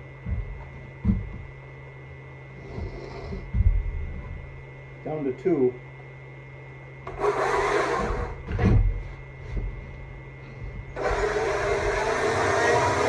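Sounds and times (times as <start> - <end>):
electric chainsaw motor whine: 7.0 - 8.8, 10.9 - 13.0
chainsaw cutting wood: 7.1 - 8.8, 11.0 - 13.0.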